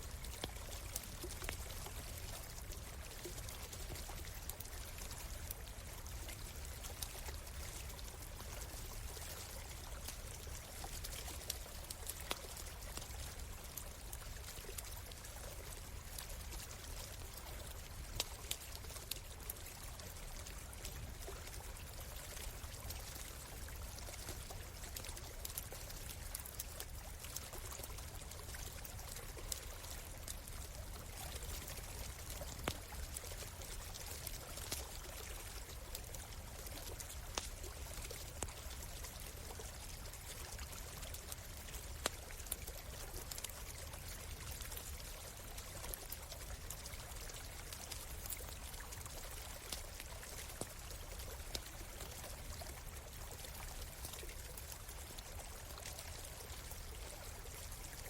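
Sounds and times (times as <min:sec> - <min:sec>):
stream running: 0:00.0 - 0:58.0
campfire crackling: 0:00.1 - 0:58.0.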